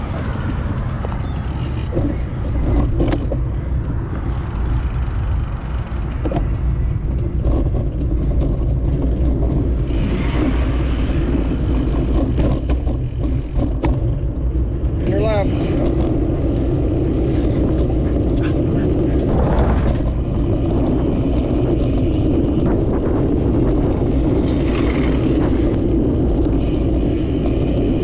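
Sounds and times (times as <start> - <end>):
road traffic: 0.0 - 28.0
steady low rumble: 0.0 - 28.0
vehicle passing close by: 15.5 - 25.8.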